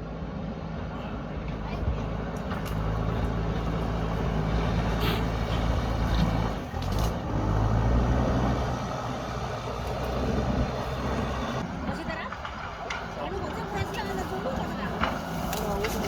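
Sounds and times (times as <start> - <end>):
diesel engine under load: 0.0 - 16.0.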